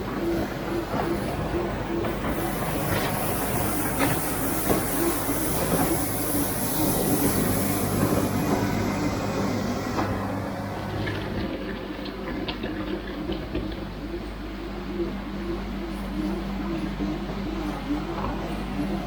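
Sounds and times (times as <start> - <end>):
rotary broom: 0.8 - 11.4
tractor engine running: 1.8 - 11.5
high hiss: 2.3 - 10.7.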